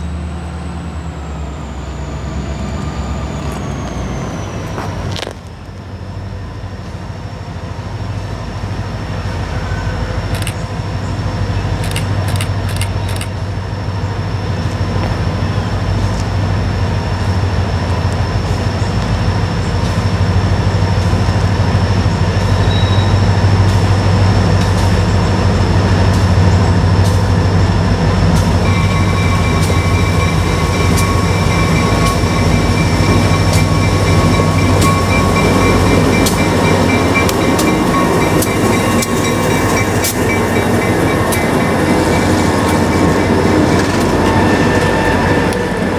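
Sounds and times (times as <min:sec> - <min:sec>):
diesel locomotives droning: 0:00.0 - 0:45.9
wheels clicking over rail joints: 0:01.4 - 0:45.9
high-pitched wheel squeal: 0:22.6 - 0:24.4, 0:28.5 - 0:45.9.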